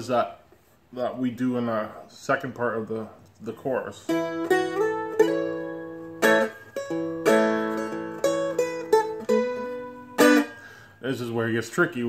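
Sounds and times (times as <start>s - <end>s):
dulcimer strummed and picked: 4.0s - 10.9s.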